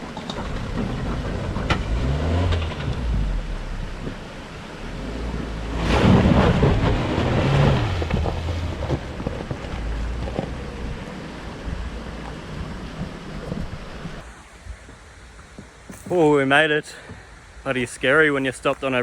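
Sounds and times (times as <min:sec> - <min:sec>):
low engine hum: 0:00.0 - 0:15.0
water surging and splashing: 0:00.0 - 0:19.0.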